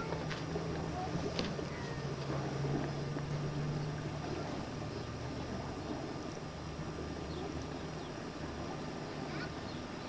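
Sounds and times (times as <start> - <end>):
distant motor hum: 0.0 - 10.0
wind: 0.0 - 10.0.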